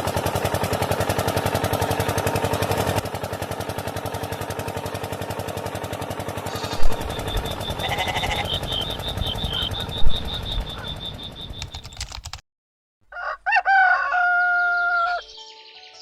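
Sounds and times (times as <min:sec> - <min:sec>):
small engine chugging: 0:00.0 - 0:12.4
high-pitched beeping: 0:06.5 - 0:11.6
deep rumble: 0:06.7 - 0:11.9.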